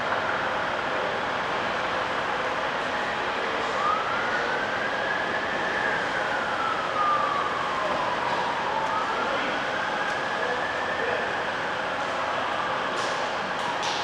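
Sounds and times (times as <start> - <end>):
siren wailing: 3.2 - 13.8.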